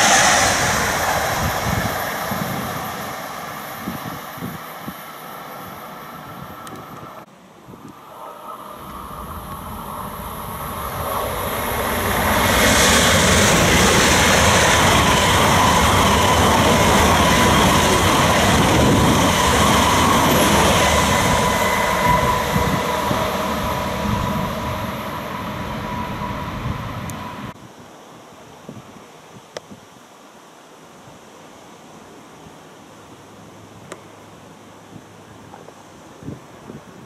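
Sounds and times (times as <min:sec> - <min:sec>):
high-speed train passing: 0:00.0 - 0:27.6
steady whine: 0:00.0 - 0:27.6.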